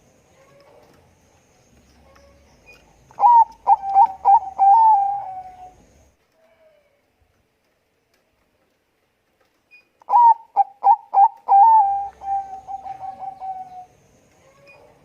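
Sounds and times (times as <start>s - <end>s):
fast-pulsing trilled coo: 3.2s - 5.7s
dove cooing: 3.2s - 5.8s, 10.1s - 13.9s.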